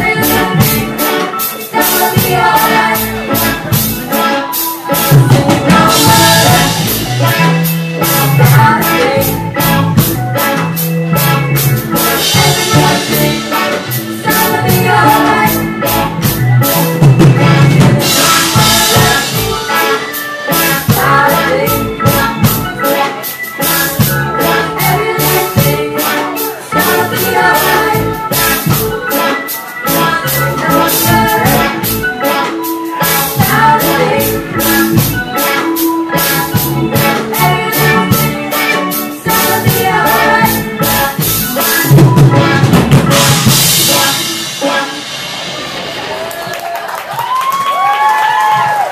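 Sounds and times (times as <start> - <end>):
drum kit beat: 0.0 - 48.9
reggae band playing: 0.0 - 48.9.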